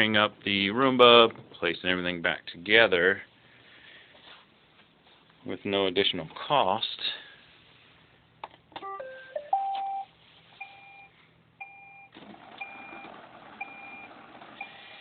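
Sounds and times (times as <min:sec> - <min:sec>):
short steady beep: 0:09.0 - 0:12.8.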